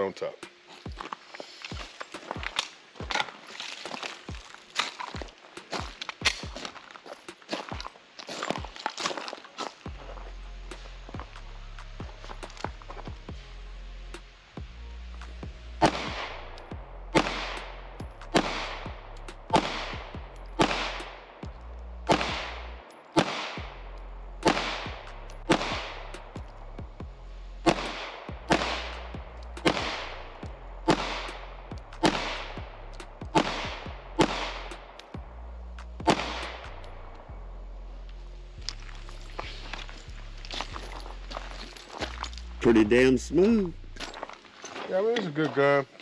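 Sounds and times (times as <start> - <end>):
background music with bass: 9.8 - 44.4
pistol shots echoing: 15.8 - 16.3, 17.1 - 26.5, 27.6 - 35.2, 36.0 - 37.0.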